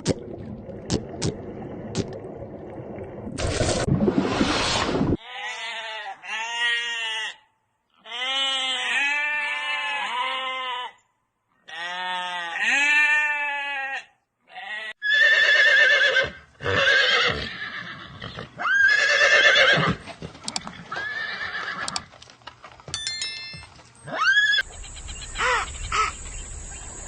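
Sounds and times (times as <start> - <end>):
animal bleating: 5.2 - 11.0, 11.6 - 15.0
horse whinnying: 15.0 - 22.1, 24.1 - 24.6.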